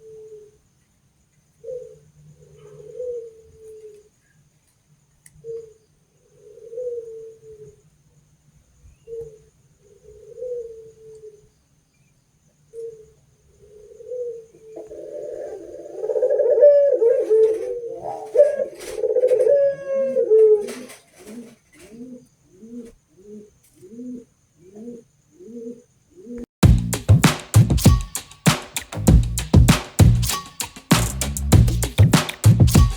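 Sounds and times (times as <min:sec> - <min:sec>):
doves cooing: 0:13.6 - 0:26.4.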